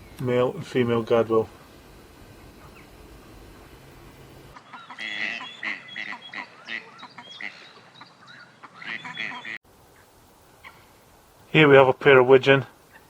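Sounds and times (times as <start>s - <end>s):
waterfowl calling: 1.1s - 9.6s, 10.6s - 10.9s.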